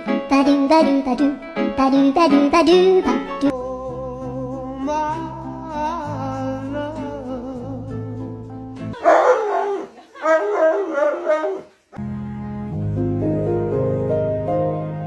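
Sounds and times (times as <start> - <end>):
dog howling: 9.0 - 11.7.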